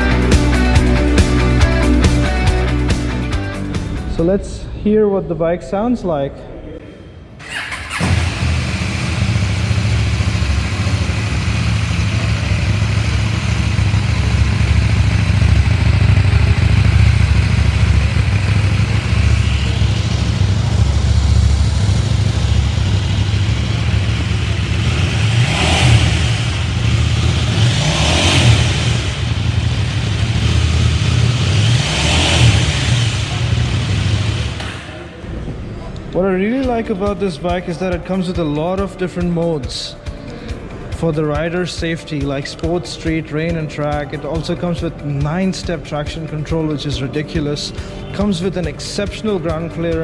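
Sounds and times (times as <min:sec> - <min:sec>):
motorcycle engine idling: 0:07.4 - 0:35.6.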